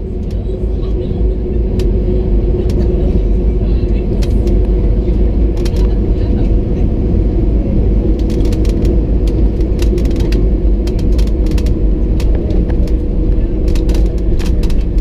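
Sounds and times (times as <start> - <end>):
airplane cabin rumble and hum: 0.0 - 15.0
short rattles and clicks: 8.2 - 15.0.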